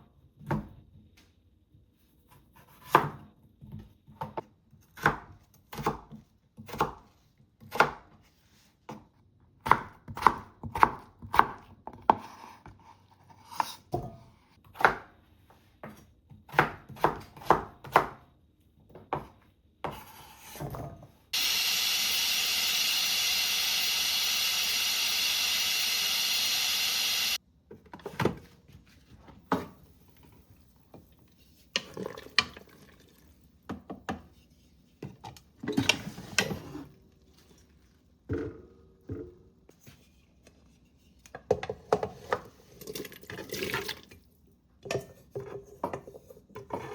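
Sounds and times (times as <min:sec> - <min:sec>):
knife chopping on cutting board: 0:09.6 - 0:12.6.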